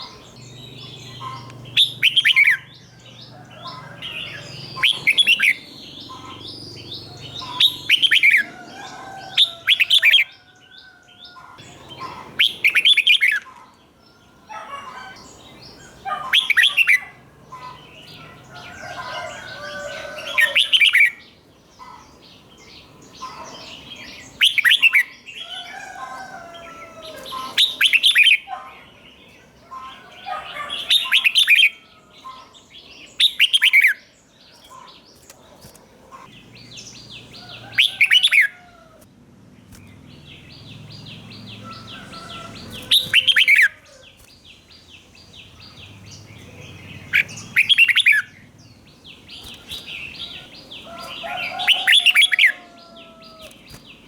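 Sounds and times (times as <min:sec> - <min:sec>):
soft bird chirping: 0:39.6 - 0:54.0.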